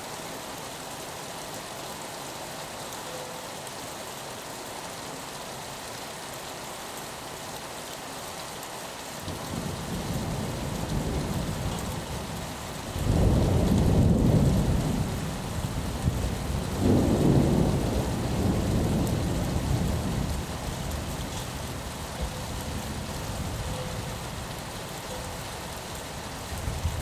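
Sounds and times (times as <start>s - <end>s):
rain against a window: 0.0s - 27.0s
thunder rumbling: 9.5s - 20.6s.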